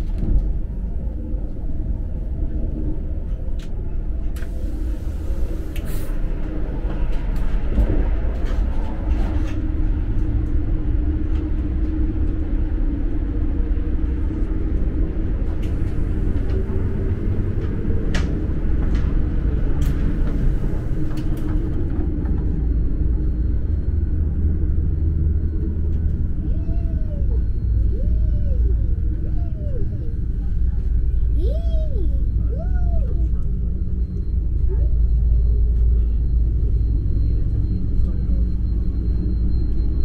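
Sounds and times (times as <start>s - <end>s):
train rumble inside cabin: 0.0s - 40.0s.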